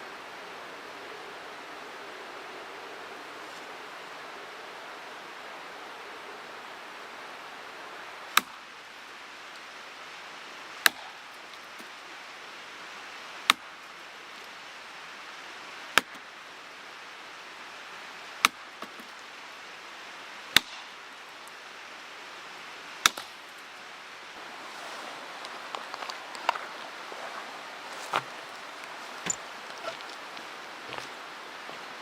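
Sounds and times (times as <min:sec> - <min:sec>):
mountain stream rushing: 0:00.0 - 0:32.0
axe chopping firewood: 0:10.8 - 0:11.1, 0:20.6 - 0:20.8, 0:23.0 - 0:23.3.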